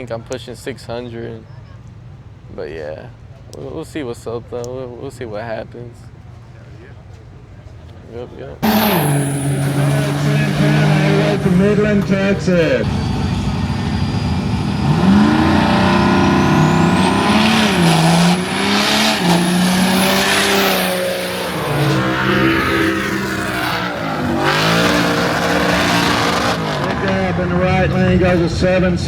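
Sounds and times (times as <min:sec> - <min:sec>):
exhaust and tyre noise: 0:06.1 - 0:29.0
drag racing engine revving: 0:08.6 - 0:29.0.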